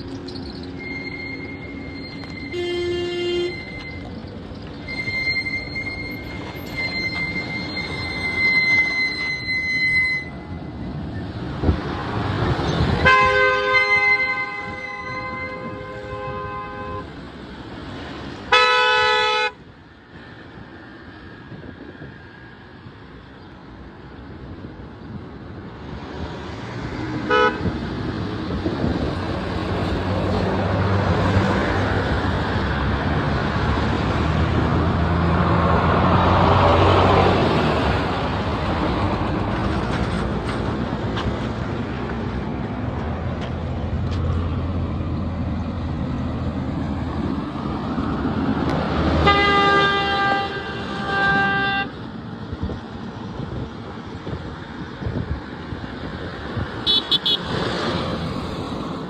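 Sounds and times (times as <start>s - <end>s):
road traffic passing: 0.0s - 59.0s
vehicle horn honking: 0.8s - 4.0s, 13.0s - 17.1s, 18.5s - 19.6s, 27.3s - 27.7s, 49.2s - 51.9s, 56.8s - 57.5s.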